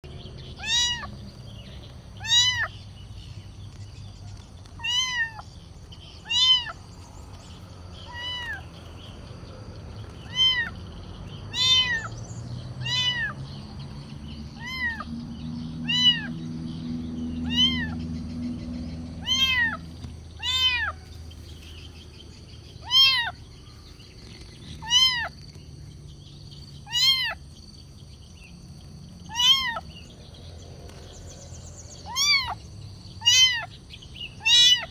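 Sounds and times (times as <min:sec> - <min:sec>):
kitten meowing: 0:00.6 - 0:01.2, 0:02.2 - 0:02.7, 0:04.8 - 0:05.5, 0:06.2 - 0:06.8, 0:08.0 - 0:08.7, 0:10.2 - 0:10.8, 0:11.5 - 0:12.1, 0:12.8 - 0:13.4, 0:14.6 - 0:15.1, 0:15.8 - 0:16.4, 0:17.4 - 0:18.0, 0:19.2 - 0:21.0, 0:22.8 - 0:23.4, 0:24.8 - 0:25.4, 0:26.8 - 0:27.4, 0:29.3 - 0:29.8, 0:32.0 - 0:32.6, 0:33.2 - 0:33.7, 0:34.4 - 0:34.9.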